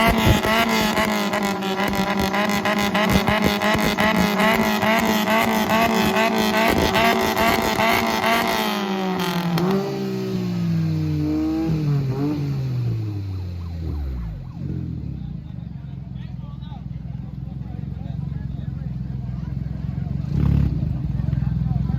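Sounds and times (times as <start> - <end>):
engine revving through loud exhaust: 0.0 - 15.3, 20.1 - 21.2
exhaust crackles: 0.0 - 15.4.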